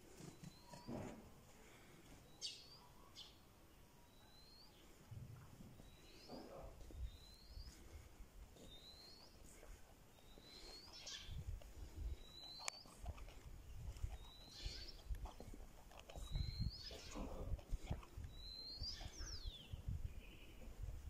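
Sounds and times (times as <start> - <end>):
bird chirping: 0.2 - 1.0, 2.2 - 20.8.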